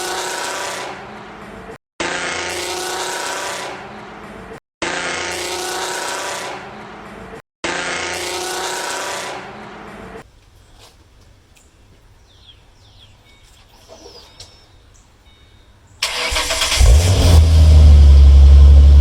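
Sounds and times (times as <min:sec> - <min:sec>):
car engine revving with whine: 0:16.1 - 0:19.0.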